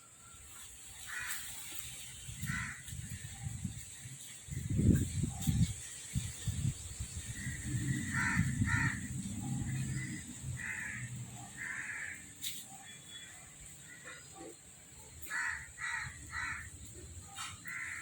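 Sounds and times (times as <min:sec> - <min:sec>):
crows cawing: 0:01.0 - 0:01.6, 0:02.4 - 0:03.2, 0:07.4 - 0:13.2, 0:15.2 - 0:18.0.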